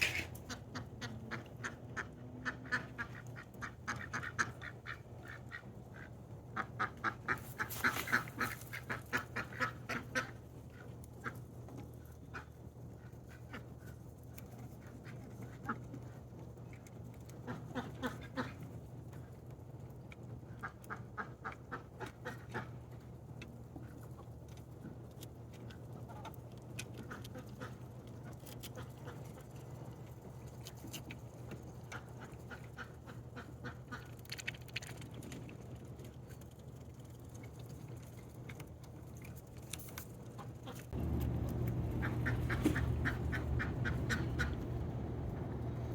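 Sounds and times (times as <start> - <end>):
ducks quacking: 0.0 - 10.4, 40.6 - 45.9.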